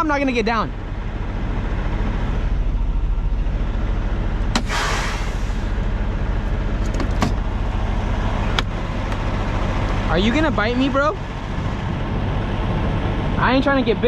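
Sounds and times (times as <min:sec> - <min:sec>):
diesel truck engine idling: 0:00.0 - 0:14.0
short air hiss: 0:04.6 - 0:05.8.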